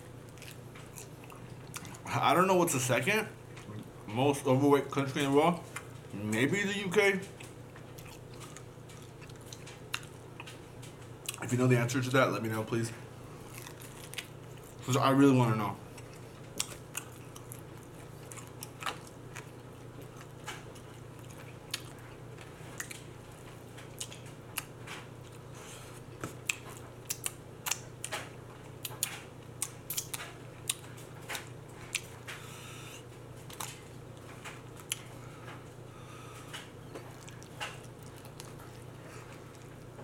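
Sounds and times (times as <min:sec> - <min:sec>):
low steady hum: 0:00.0 - 0:40.0
chewing and biting: 0:00.2 - 0:02.1, 0:07.3 - 0:11.4, 0:13.3 - 0:14.9, 0:15.9 - 0:32.6, 0:33.4 - 0:35.6, 0:36.3 - 0:40.0.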